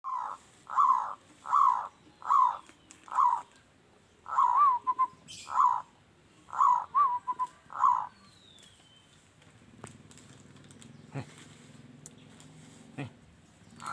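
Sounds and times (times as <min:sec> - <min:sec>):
dove cooing: 0:00.0 - 0:03.5, 0:04.3 - 0:05.9, 0:06.5 - 0:08.1.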